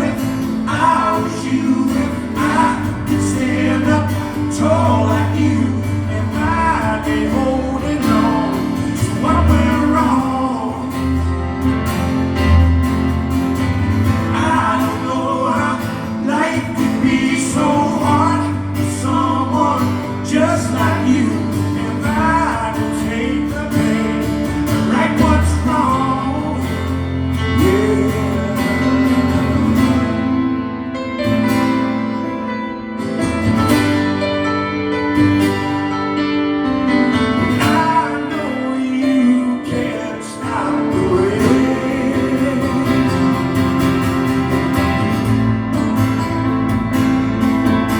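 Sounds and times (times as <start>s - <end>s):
person singing: 0.0s - 11.6s, 14.2s - 30.3s, 37.5s - 44.0s
acoustic guitar: 0.0s - 47.9s.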